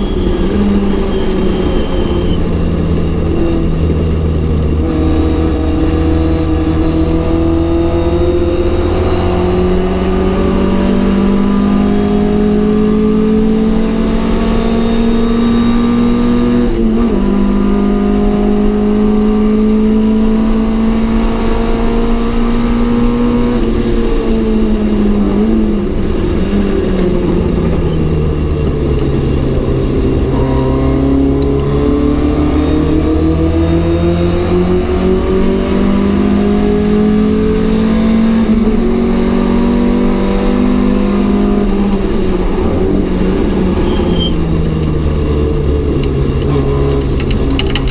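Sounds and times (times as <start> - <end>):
race car engine revving: 0.0 - 47.9
gear change: 20.9 - 47.9.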